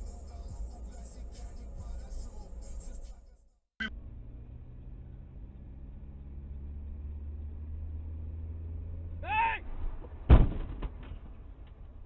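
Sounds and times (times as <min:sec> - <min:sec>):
vehicle engine and road noise: 0:00.0 - 0:12.0
loud thump: 0:09.7 - 0:11.4.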